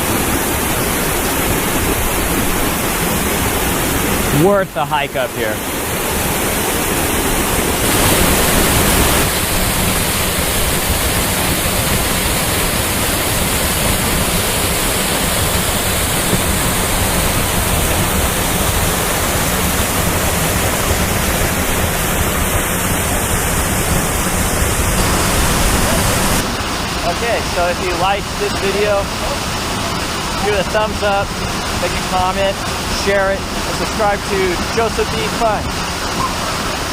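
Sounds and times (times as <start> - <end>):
waterfall rushing: 0.0 - 36.9.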